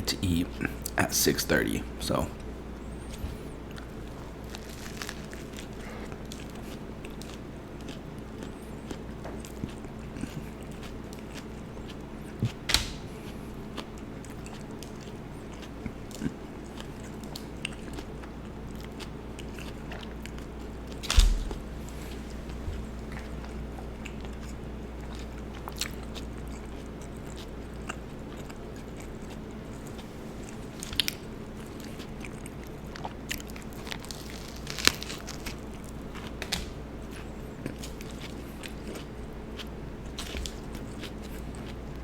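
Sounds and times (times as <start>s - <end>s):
steady low hum: 0.0s - 42.0s
chewing mouth sounds: 2.9s - 21.0s, 22.0s - 36.4s
crisp crunches: 3.8s - 8.0s, 33.0s - 38.7s.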